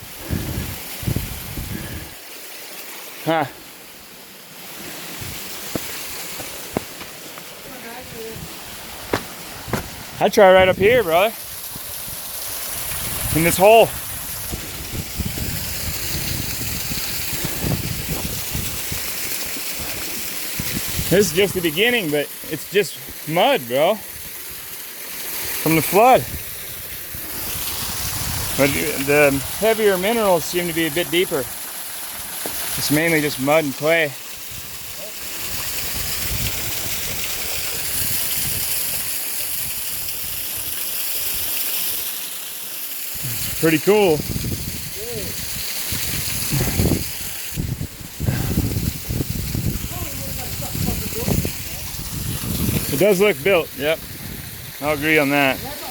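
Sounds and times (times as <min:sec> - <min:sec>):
water rushing over small waterfalls: 0:00.0 - 0:55.9
low knocks and rustles: 0:09.1 - 0:10.0.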